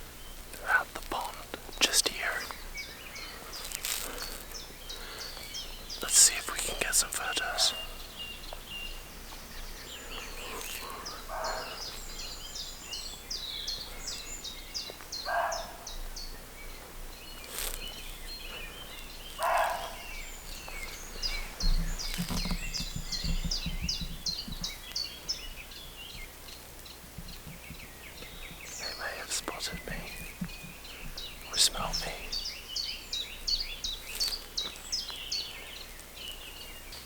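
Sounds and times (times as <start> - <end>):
songbirds singing: 0.0 - 37.0
deer barking: 10.8 - 11.8, 15.3 - 15.9, 19.4 - 20.0.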